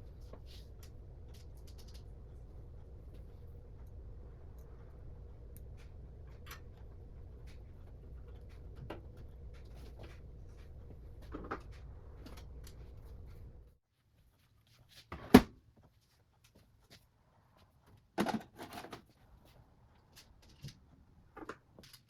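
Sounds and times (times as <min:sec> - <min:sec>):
low hum: 0:00.0 - 0:13.8.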